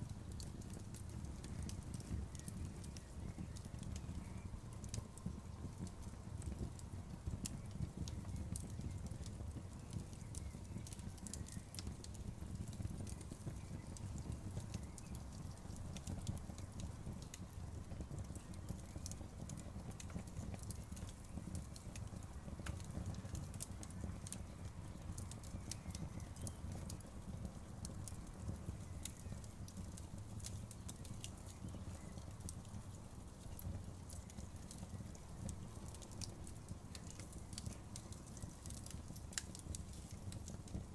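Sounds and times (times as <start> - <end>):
burning wood crackling: 0.0 - 40.9
low rumble of flames: 0.0 - 40.9.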